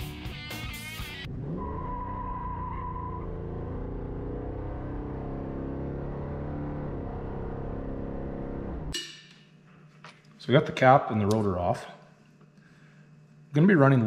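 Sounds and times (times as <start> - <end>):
car engine cruising: 1.0 - 8.9.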